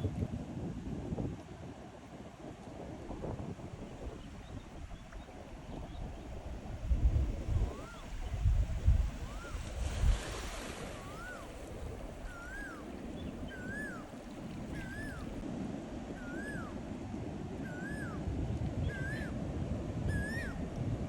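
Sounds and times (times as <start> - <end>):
wind buffeting microphone: 0.0 - 21.0
animal whistled call: 7.6 - 8.1, 9.2 - 9.6, 10.2 - 11.6, 12.2 - 12.9, 13.5 - 14.1, 14.7 - 15.4, 16.2 - 16.8, 17.6 - 18.2, 18.8 - 19.4, 20.1 - 20.6.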